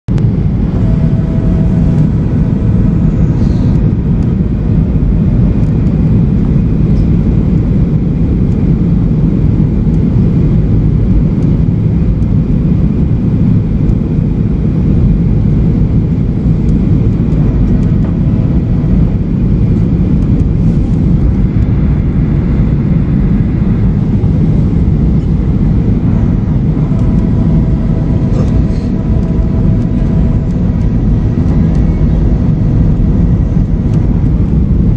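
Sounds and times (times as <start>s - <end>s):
faint whining tones: 0.1s - 8.8s, 9.6s - 34.9s
jet engines roaring: 0.1s - 34.9s.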